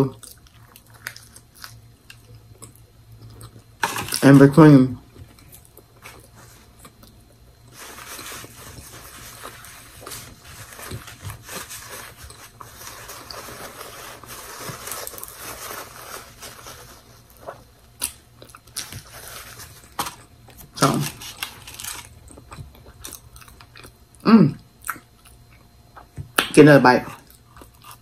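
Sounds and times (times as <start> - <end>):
chewing a sandwich: 0.1 - 4.2, 5.1 - 26.2, 27.2 - 28.0
paper napkin crinkling: 7.7 - 17.7, 18.6 - 22.2.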